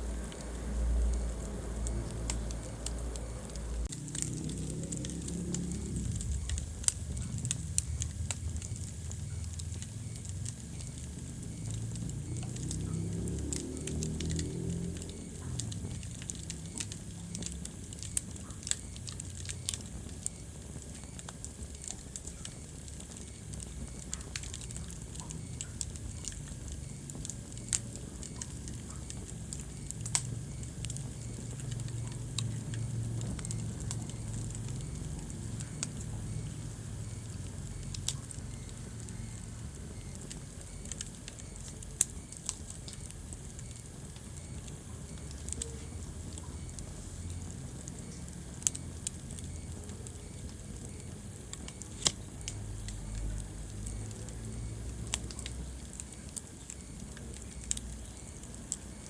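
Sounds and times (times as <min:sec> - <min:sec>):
fire crackling and popping: 0:00.0 - 0:59.0
low rumble of flames: 0:00.0 - 0:59.0.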